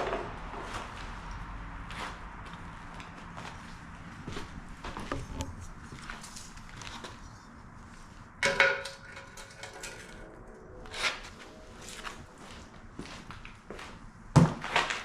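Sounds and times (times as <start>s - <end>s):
steel parts clanking: 8.4s - 10.3s.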